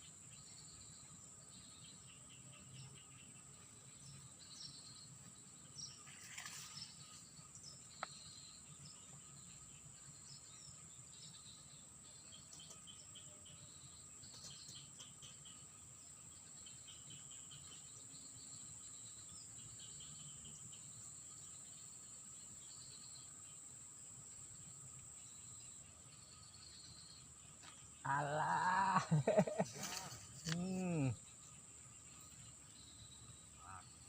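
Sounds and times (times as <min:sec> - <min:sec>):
brief rustle: 0:06.1 - 0:06.9, 0:29.7 - 0:30.6
high-pitched insect drone: 0:25.2 - 0:34.0.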